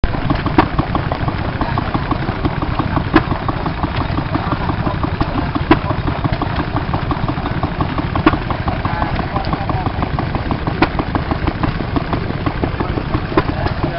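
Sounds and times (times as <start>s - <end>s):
engine sharp crack: 0.0s - 13.9s
stationary engine clattering: 0.0s - 13.9s.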